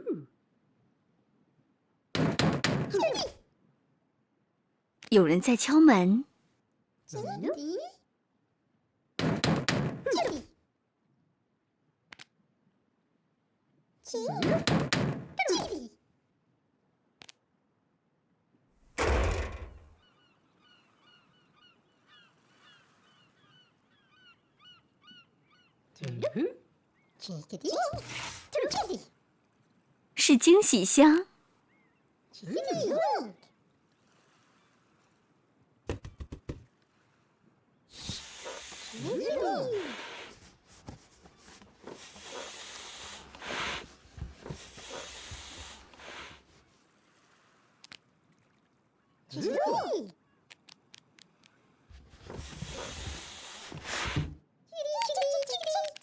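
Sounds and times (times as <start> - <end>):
heavy cartoon thump: 2.2 - 3.0, 19.0 - 20.0
hissing spurts: 38.0 - 40.4, 41.8 - 46.5, 52.2 - 54.3.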